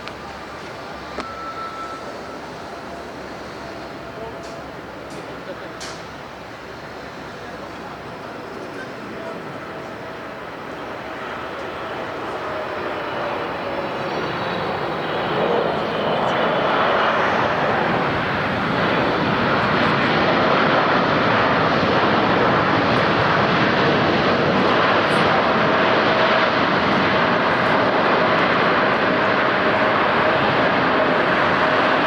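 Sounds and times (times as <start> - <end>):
jet engines rushing: 0.0 - 32.0
faint steady tone: 1.0 - 4.3.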